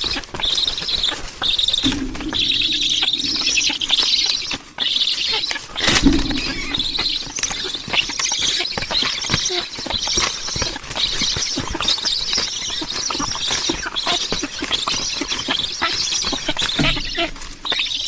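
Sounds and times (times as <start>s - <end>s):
squeaky chattering bird calls: 0.0s - 18.0s
small clicks and scratches: 7.0s - 18.0s.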